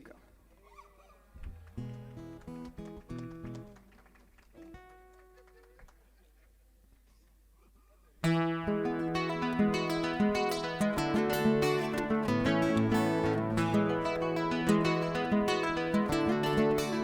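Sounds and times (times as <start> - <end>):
acoustic guitar plucked notes: 8.2 - 17.0
acoustic guitar strummed chords: 8.2 - 17.0.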